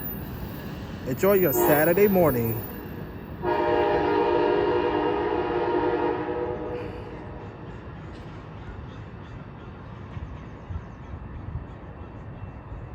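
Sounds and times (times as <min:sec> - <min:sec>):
train horn chord: 0:01.3 - 0:02.5, 0:03.4 - 0:07.5.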